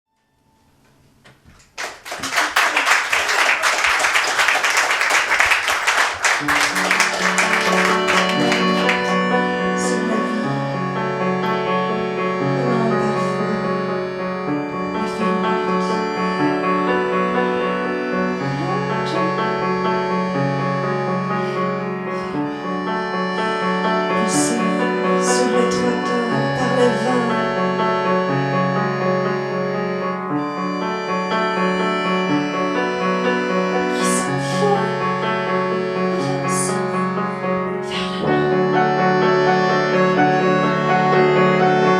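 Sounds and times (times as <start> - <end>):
audience applause: 1.6 - 9.4
live band playing keyboard music: 2.2 - 41.9.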